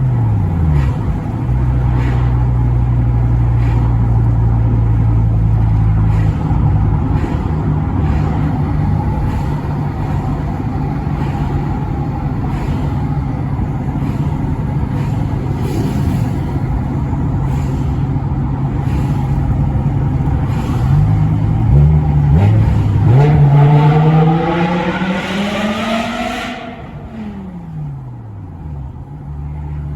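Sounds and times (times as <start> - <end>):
car engine revving: 18.7 - 29.9.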